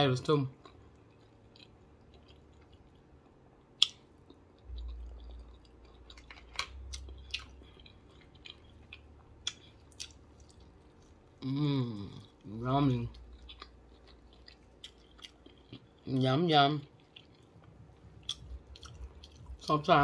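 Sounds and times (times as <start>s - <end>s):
person chewing with mouth closed: 0.6s - 12.5s, 13.1s - 16.1s, 17.0s - 19.6s
wet mouth clicks: 3.8s - 4.0s
low rumble: 4.6s - 11.4s, 17.5s - 20.0s.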